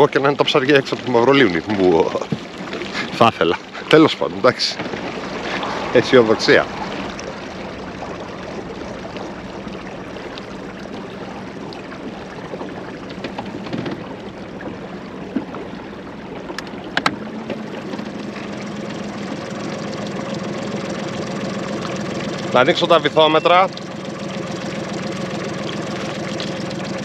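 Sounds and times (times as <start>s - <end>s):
water around a boat: 0.0s - 27.0s
wind: 0.0s - 27.0s.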